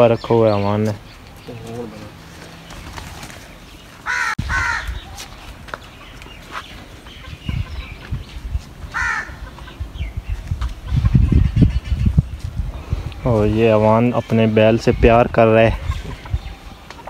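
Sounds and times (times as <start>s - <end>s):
bird calling: 0.0s - 12.4s.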